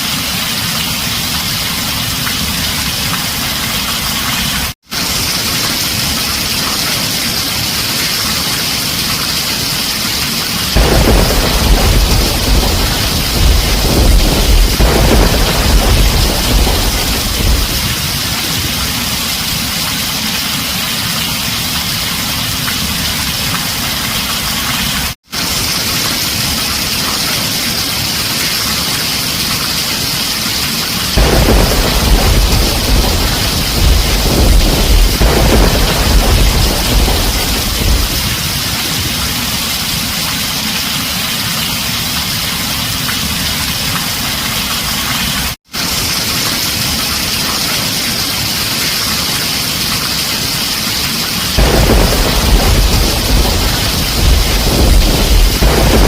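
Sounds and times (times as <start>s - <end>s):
heavy rain on a tin roof: 0.0s - 56.0s
deep thunder rumble: 10.7s - 19.7s, 31.2s - 39.8s, 51.6s - 56.0s.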